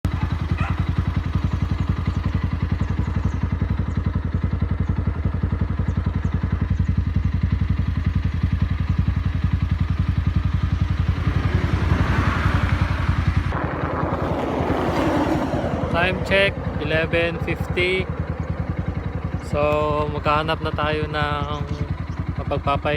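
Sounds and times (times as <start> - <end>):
motorcycle engine running: 0.0 - 22.9
wind noise: 11.1 - 16.8.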